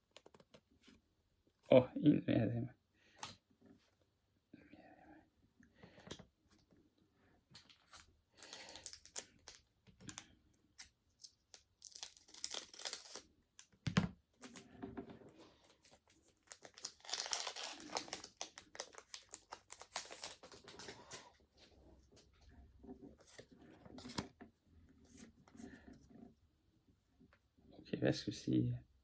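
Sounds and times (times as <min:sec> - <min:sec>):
foil wrapper crinkling and tearing: 0:07.7 - 0:13.3, 0:15.7 - 0:21.3.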